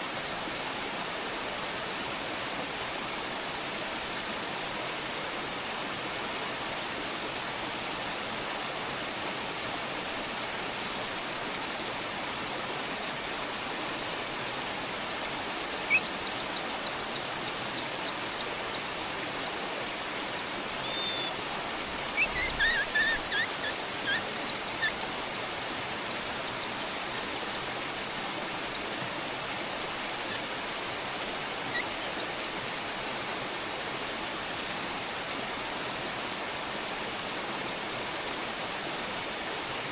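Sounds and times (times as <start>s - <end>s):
steady rushing hiss: 13.6s - 35.4s
high-pitched bird chirps: 15.9s - 20.0s, 20.8s - 27.7s, 31.7s - 32.6s.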